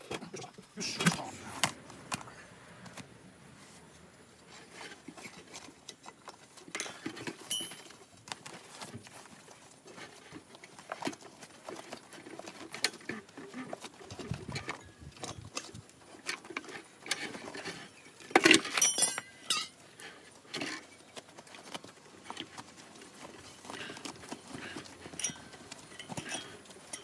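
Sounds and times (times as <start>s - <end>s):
hand tools clicking and knocking: 4.8s - 9.2s, 9.8s - 27.0s.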